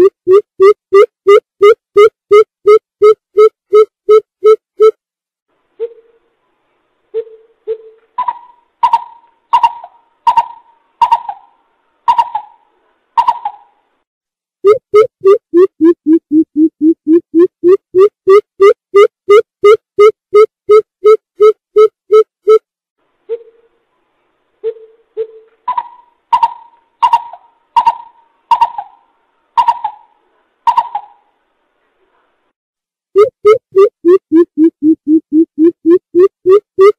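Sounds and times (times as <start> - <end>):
bird hollow hooting calls: 8.2 - 12.6, 25.2 - 30.1.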